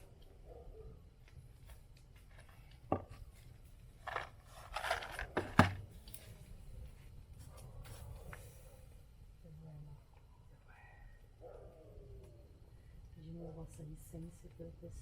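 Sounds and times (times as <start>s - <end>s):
scraping rustle: 2.2s - 6.4s.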